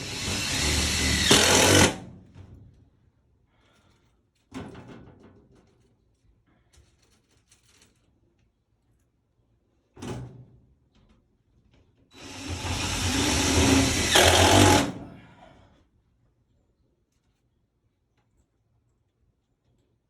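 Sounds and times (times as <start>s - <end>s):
power tool running: 0.0s - 2.0s, 12.2s - 15.2s.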